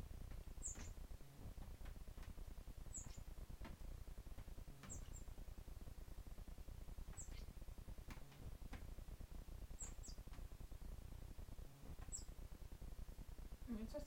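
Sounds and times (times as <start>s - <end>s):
blackbird high-pitched calls: 0.6s - 1.0s, 2.9s - 3.3s, 4.8s - 5.3s, 7.2s - 7.5s, 9.8s - 10.2s, 12.0s - 12.4s.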